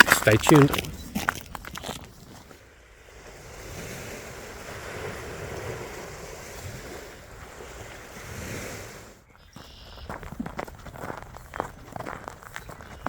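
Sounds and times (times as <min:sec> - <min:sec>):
lake waves washing against shore: 0:00.0 - 0:09.3.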